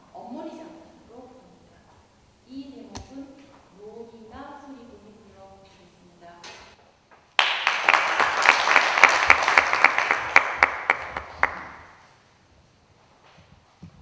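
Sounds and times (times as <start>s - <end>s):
sharp single claps: 7.4s - 11.9s
audience applauding: 7.4s - 12.0s.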